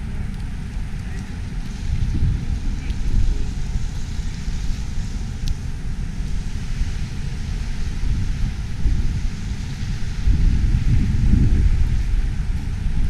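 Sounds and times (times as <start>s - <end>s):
wind buffeting microphone: 0.0s - 13.0s
faint tick: 0.3s - 1.8s.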